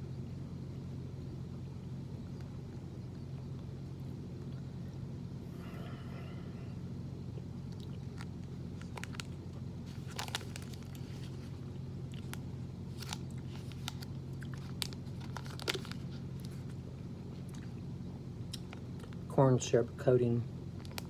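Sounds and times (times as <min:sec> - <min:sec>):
steady low hum: 0:00.0 - 0:21.0
mouth clicks and crunches: 0:07.4 - 0:11.1, 0:18.5 - 0:19.2
chewing a chewy bar: 0:07.4 - 0:17.8.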